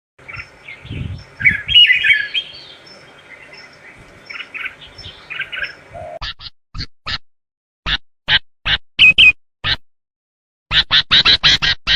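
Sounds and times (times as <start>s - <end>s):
bird singing chirps: 0.2s - 6.2s.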